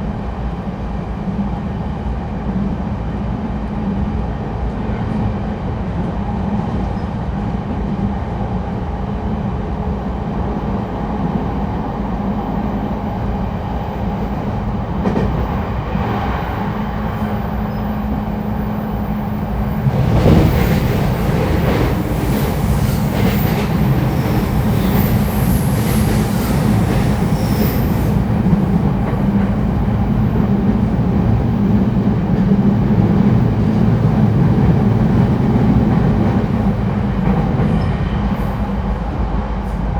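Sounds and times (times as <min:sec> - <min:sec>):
wheels rumbling on rail: 0:00.0 - 0:39.9
high wheel squeals: 0:22.8 - 0:28.3.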